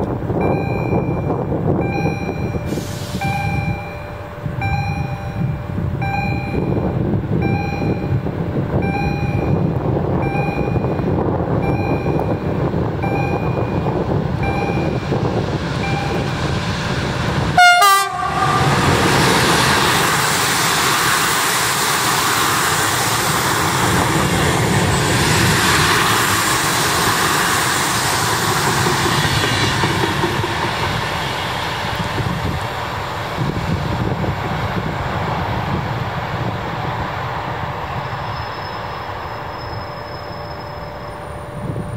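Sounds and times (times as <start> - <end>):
train rushing past: 0.0 - 41.9
regular electronic beep: 0.4 - 8.2, 8.8 - 9.6, 10.2 - 15.0.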